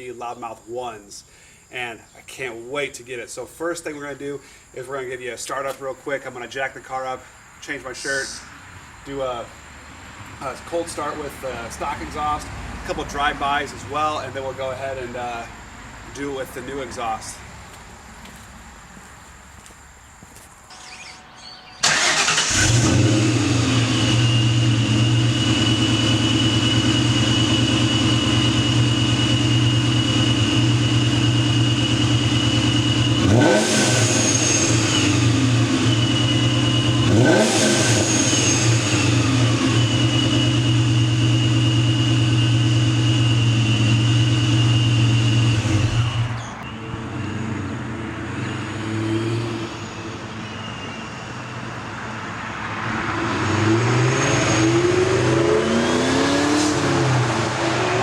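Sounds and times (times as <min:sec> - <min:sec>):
car engine fast idle: 0:21.8 - 0:46.5
engine revving: 0:21.8 - 0:50.3, 0:52.7 - 0:58.0.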